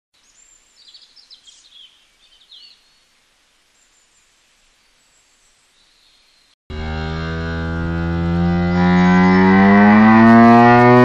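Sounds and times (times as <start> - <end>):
birds chirping and trilling: 0.2 - 6.6
soft steady hiss: 0.2 - 6.6.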